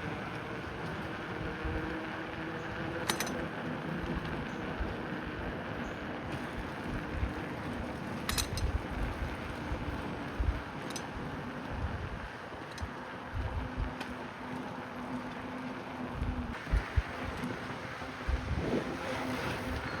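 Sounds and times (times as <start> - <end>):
bicycle tyre rumble: 0.0 - 20.0
wind on microphone: 8.5 - 14.0, 16.1 - 20.0.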